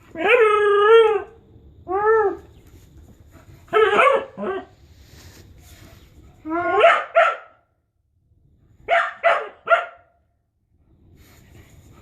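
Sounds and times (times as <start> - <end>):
dog howling call: 0.1 - 2.5
dog barking: 3.7 - 4.7, 6.7 - 7.6, 8.8 - 10.2.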